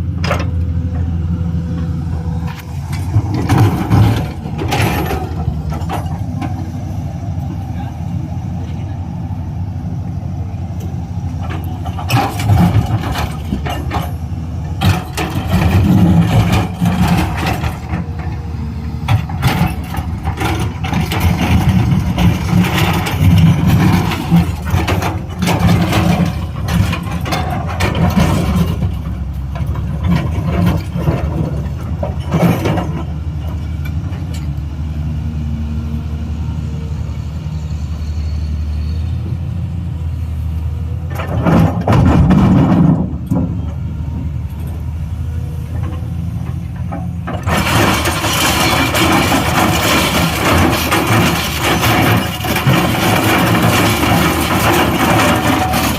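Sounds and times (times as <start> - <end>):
excavator diesel engine running: 0.0 - 55.9
machine clanks and knocks: 0.2 - 1.1, 2.5 - 6.7, 11.4 - 18.4, 19.0 - 34.5, 41.1 - 43.8, 45.7 - 55.9.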